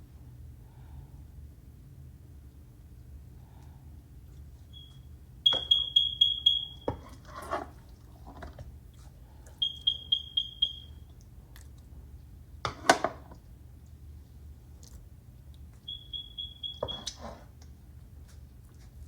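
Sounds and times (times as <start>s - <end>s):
rapid high-pitched alarm beeps: 4.8s - 7.0s, 9.6s - 11.0s, 15.9s - 17.1s.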